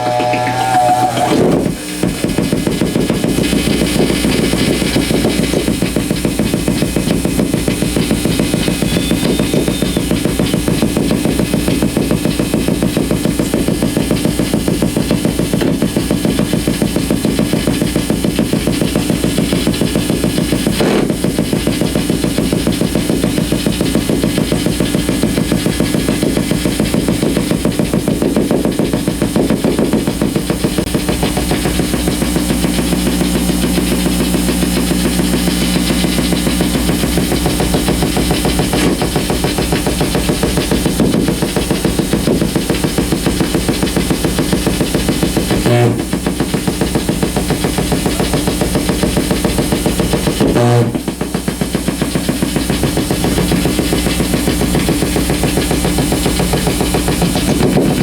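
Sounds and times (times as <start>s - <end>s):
dense electrical pulsing: 0.0s - 58.0s
sharp electrical crack: 28.8s - 58.0s.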